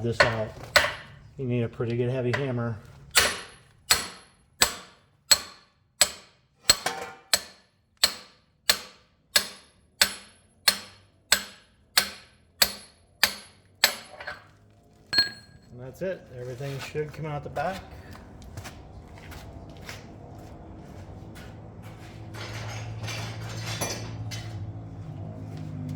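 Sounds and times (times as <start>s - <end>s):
hammer striking steel: 0.2s - 1.2s, 2.3s - 14.4s, 15.2s - 15.6s.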